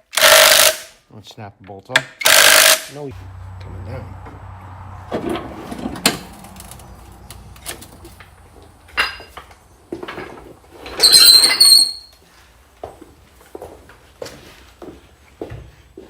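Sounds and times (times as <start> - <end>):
metallic scrape and ring: 10.9 - 12.1.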